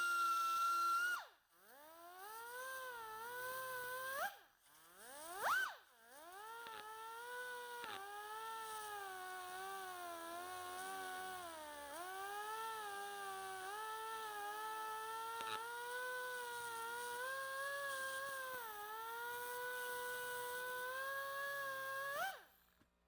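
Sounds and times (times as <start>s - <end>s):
die grinder whining: 5.0s - 22.4s.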